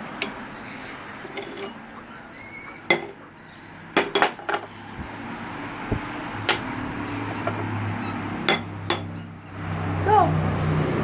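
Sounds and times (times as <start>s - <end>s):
dishes clinking: 0.0s - 3.3s, 3.9s - 4.8s, 6.4s - 7.8s, 8.4s - 9.3s.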